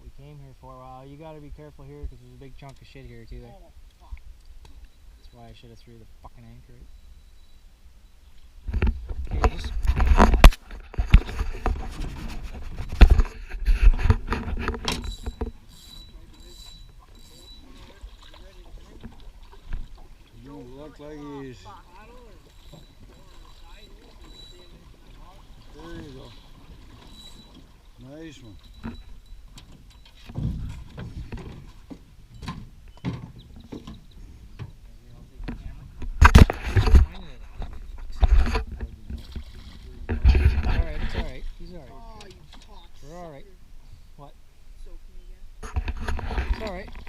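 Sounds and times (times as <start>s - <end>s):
knocks and scraping in boat: 1.2s - 44.1s, 44.8s - 47.0s
sharp thumps against hull: 8.6s - 15.7s, 16.9s - 20.2s, 28.6s - 42.8s.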